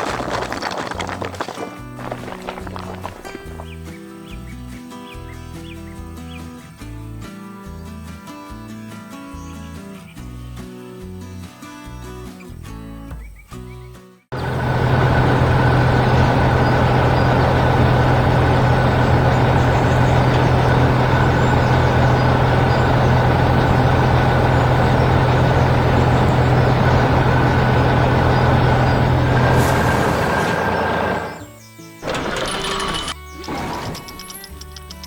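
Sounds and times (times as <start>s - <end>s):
heavy truck engine running: 0.0s - 4.4s, 14.3s - 34.4s.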